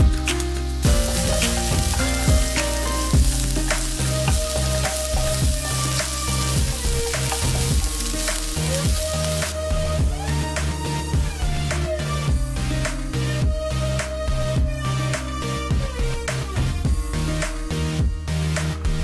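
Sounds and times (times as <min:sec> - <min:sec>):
food sizzling in oil: 0:00.0 - 0:10.0
wooden spatula stirring: 0:01.0 - 0:09.6.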